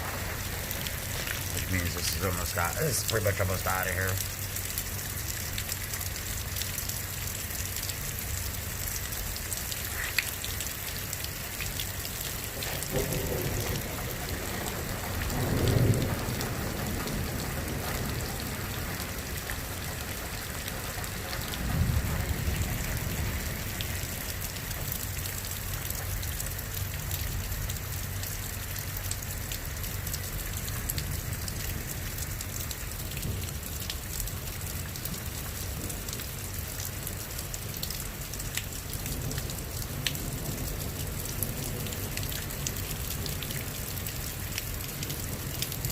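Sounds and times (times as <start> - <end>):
thunder rumbling: 0.0 - 4.0, 12.4 - 24.3
steady rain: 0.0 - 45.9.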